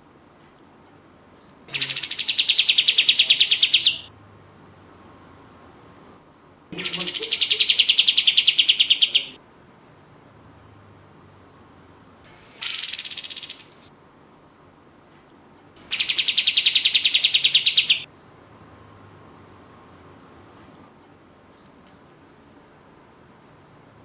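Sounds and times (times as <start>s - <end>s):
bird singing fast trills: 1.7s - 4.1s, 6.8s - 9.4s, 12.6s - 13.8s, 15.9s - 18.1s.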